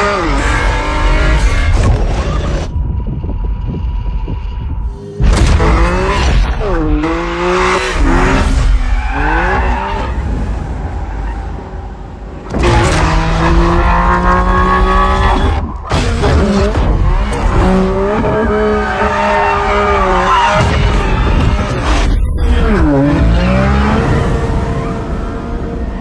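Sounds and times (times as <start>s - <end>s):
car engine revving hard: 5.5s - 10.6s, 12.5s - 20.6s.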